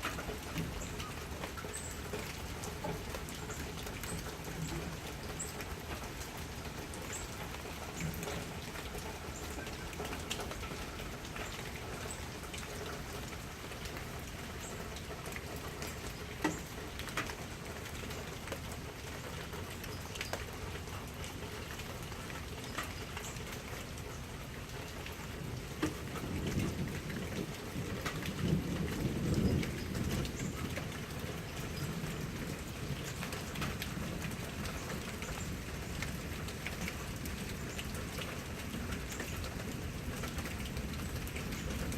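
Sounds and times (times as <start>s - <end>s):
raindrops ticking on a surface: 0.0s - 41.9s
steady rain: 0.0s - 41.9s
low rumble of thunder: 25.3s - 36.5s, 38.3s - 41.9s.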